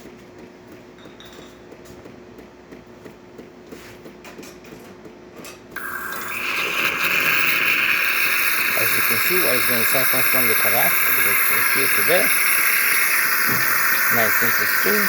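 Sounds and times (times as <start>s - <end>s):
espresso machine humming: 5.8s - 15.0s
loud steam hiss: 5.8s - 15.0s.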